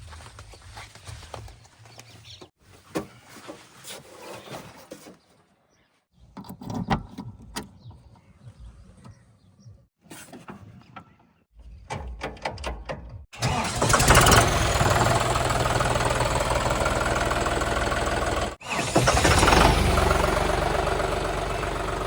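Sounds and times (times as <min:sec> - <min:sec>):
heavy diesel engine running: 0:13.4 - 0:22.0.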